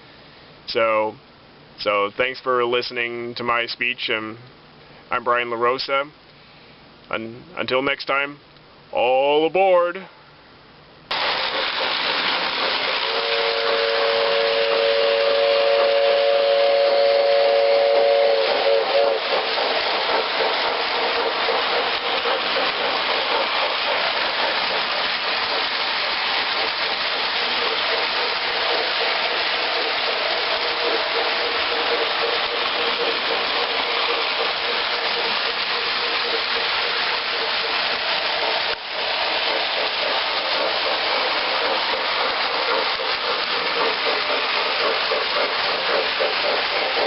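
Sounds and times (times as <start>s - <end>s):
steam locomotive hissing: 11.1s - 47.0s
locomotive chime whistle: 13.1s - 19.2s.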